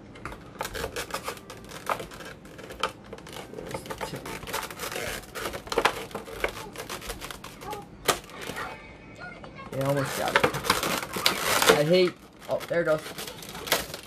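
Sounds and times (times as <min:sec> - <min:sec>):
plastic and cardboard crinkling: 0:00.2 - 0:08.8, 0:09.6 - 0:14.0
small clicks and scrapes: 0:00.6 - 0:07.9.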